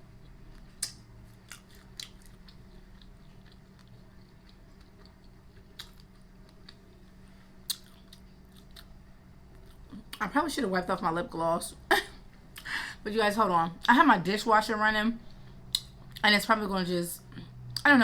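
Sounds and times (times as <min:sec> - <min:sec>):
chewing crunchy chicken wing: 0:00.0 - 0:10.2.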